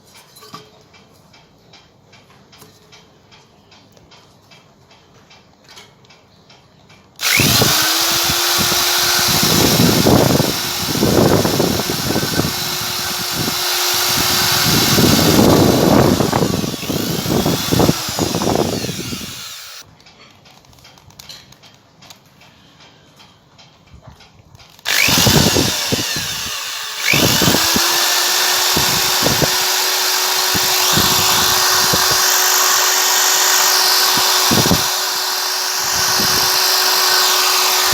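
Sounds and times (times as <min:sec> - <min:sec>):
power drill grinding: 0:07.2 - 0:19.8, 0:24.8 - 0:37.9.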